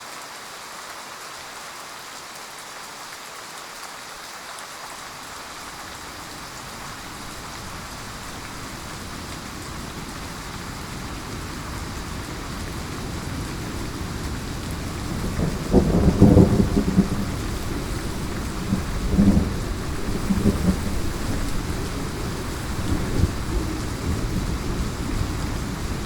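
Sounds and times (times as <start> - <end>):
heavy rain hissing: 0.0 - 26.0
thunder rumbling: 5.7 - 26.0.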